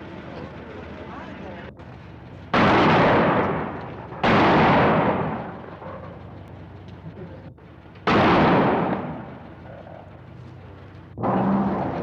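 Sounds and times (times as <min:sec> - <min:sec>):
bomb blasts: 0:02.5 - 0:05.8, 0:08.0 - 0:09.7.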